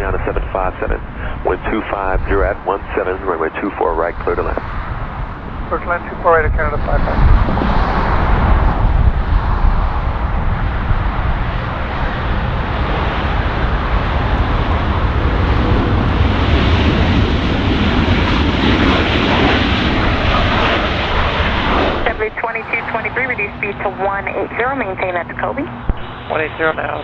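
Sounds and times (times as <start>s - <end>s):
jet airliner engines roaring: 0.0s - 27.0s.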